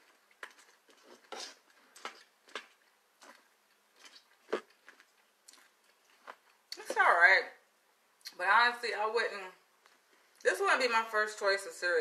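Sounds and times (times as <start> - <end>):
person eating cereal: 0.0 - 6.8.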